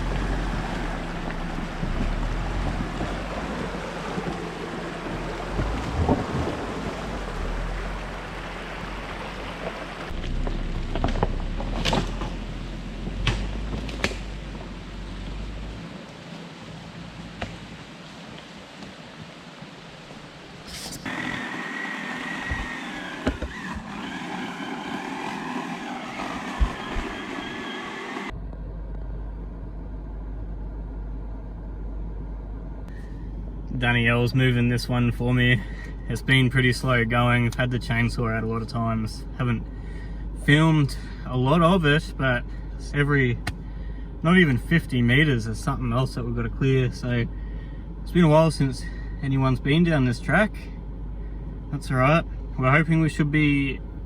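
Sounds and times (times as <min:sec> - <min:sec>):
rushing wind: 0:00.0 - 0:10.2, 0:17.6 - 0:28.3
vehicle driving over rough track: 0:00.0 - 0:17.9, 0:21.0 - 0:28.6
low steady rumble: 0:00.0 - 0:21.8, 0:22.4 - 0:54.0
engine hum: 0:00.0 - 0:54.0
road noise: 0:00.0 - 0:54.0.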